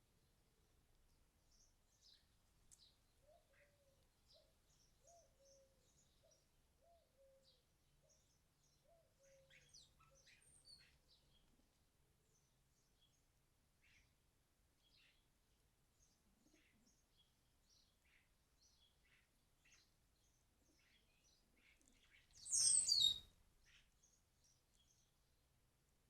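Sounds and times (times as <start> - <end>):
low repeated bird calls: 20.8 - 23.9
high bird chirps: 22.4 - 23.2.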